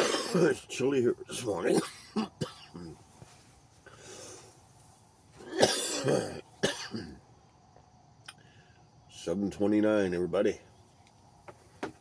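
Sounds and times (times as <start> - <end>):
man coughing: 0.0 - 0.6, 1.6 - 3.0, 5.4 - 7.2.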